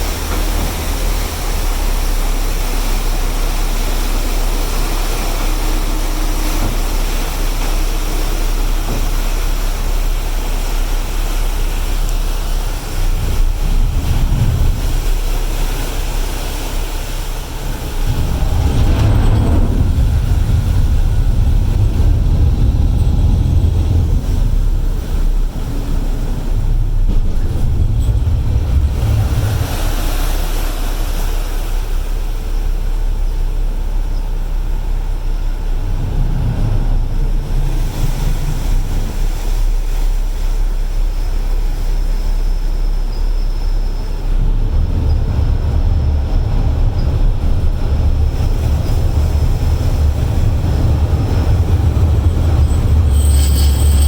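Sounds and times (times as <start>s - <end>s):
ferry engines rumbling: 0.0s - 54.0s
water: 0.0s - 54.0s
wind buffeting microphone: 12.8s - 30.4s, 44.3s - 53.2s.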